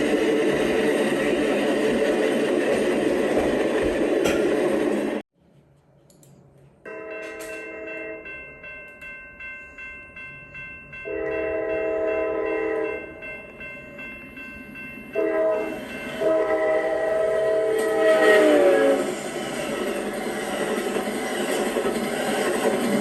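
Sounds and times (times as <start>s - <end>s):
passing train noise: 0.0s - 23.0s
locomotive air horn: 15.2s - 19.1s.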